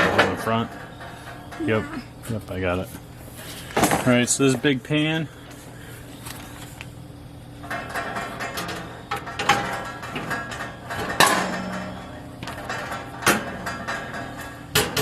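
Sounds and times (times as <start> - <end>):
sheet metal parts clanking: 7.6 - 15.0.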